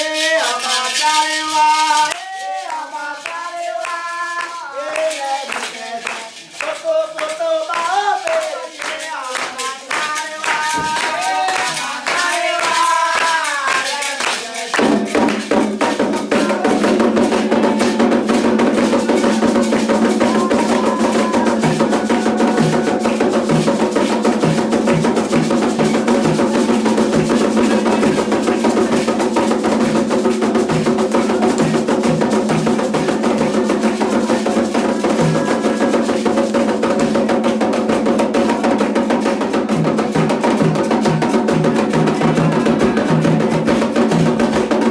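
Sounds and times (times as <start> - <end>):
hand clapping: 0.0 - 39.7
hand drums fast rhythm: 0.0 - 44.9
ritual chanting: 0.0 - 44.9
struck bell-like percussion: 9.3 - 44.9.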